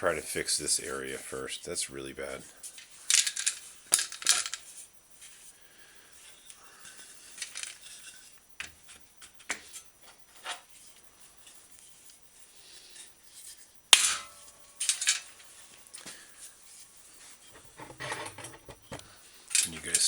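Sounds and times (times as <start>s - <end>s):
metal fender and tools clinking: 3.1s - 4.7s, 13.5s - 15.5s, 17.4s - 20.0s.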